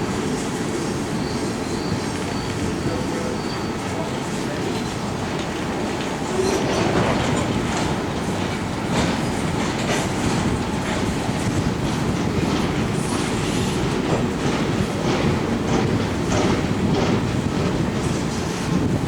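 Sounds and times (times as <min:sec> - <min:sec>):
hopper cars rattling: 0:00.0 - 0:19.0
train wheels clacking over rail joints: 0:00.0 - 0:19.0.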